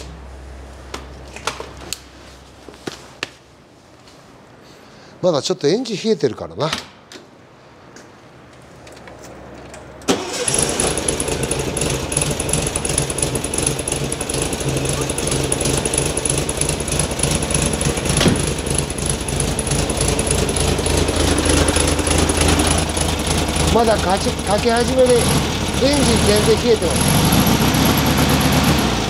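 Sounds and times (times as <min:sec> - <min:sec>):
car engine starting and running: 0:10.0 - 0:29.0
steady high whine: 0:10.5 - 0:29.0.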